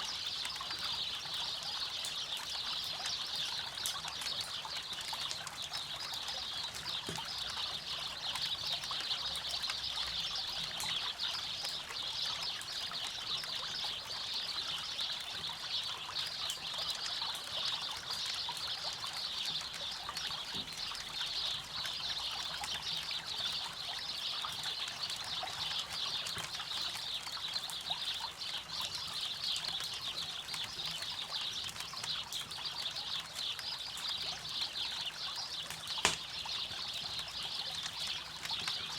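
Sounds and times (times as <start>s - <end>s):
campfire crackling: 29.1s - 38.9s.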